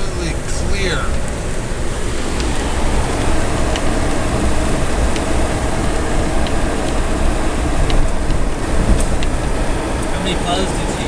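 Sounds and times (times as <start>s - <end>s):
engine and road noise: 0.0s - 11.0s.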